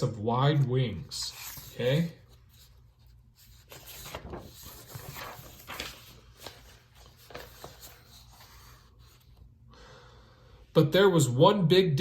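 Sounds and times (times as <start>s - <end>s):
soft handling rustles: 0.6s - 9.5s.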